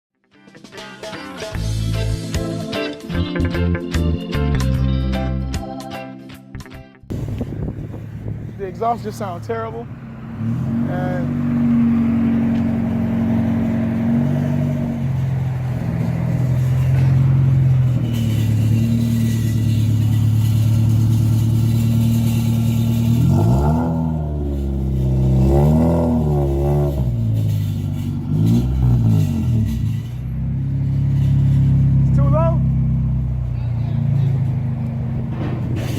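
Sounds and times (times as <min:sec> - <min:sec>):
car engine droning: 0:07.1 - 0:35.9
car engine revving: 0:07.2 - 0:35.9.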